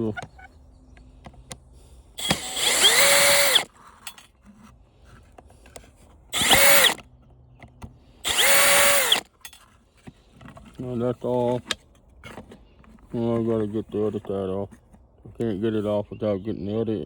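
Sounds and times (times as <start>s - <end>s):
power drill motor whine: 2.2s - 3.7s, 6.3s - 7.0s, 8.2s - 9.3s.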